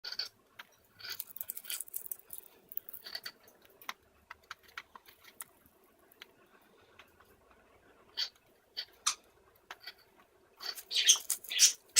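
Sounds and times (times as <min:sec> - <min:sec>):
bird beak cracking seeds: 0:01.0 - 0:05.5, 0:10.7 - 0:11.8
soft bird squeak: 0:10.6 - 0:11.8.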